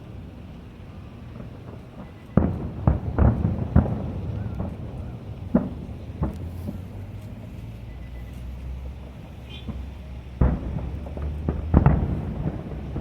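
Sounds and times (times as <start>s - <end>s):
fireworks bursting: 0.0s - 13.0s
low steady rumble: 0.0s - 13.0s.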